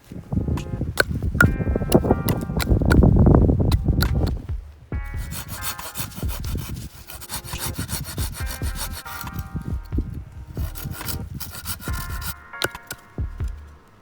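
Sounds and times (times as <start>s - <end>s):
tool scraping wood: 5.2s - 9.5s, 10.6s - 12.9s.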